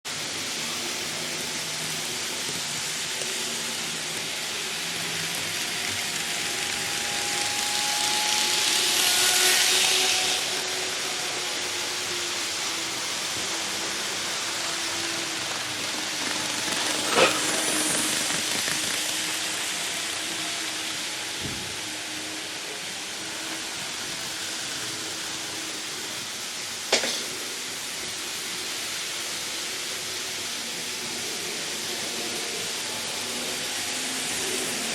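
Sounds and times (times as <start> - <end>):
model train rolling on track: 0.1 - 34.9.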